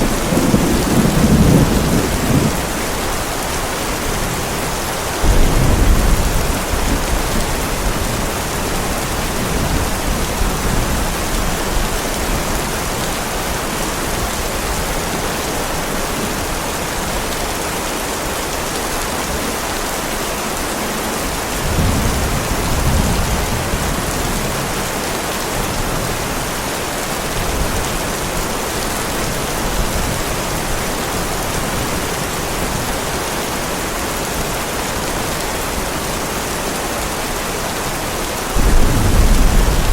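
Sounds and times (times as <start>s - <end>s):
thunder rumbling: 0.0s - 3.5s, 5.2s - 12.5s, 38.6s - 39.9s
heavy rain falling: 0.0s - 39.9s.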